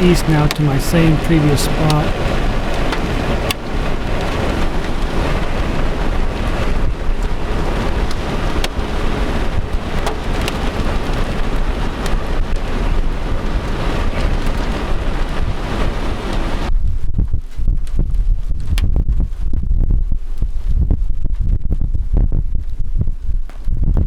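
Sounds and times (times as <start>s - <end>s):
rain rushing: 0.0s - 16.7s.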